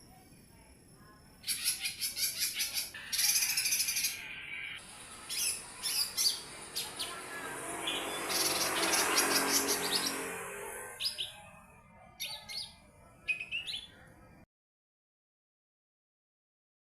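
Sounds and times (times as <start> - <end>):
bird singing rapid trills: 1.4 - 11.5.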